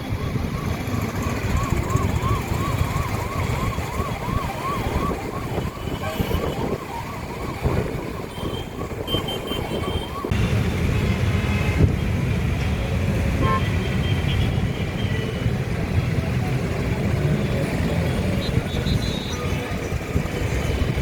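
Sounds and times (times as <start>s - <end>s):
rising siren-like wail: 0.0s - 10.4s
road traffic rumble: 0.0s - 21.0s.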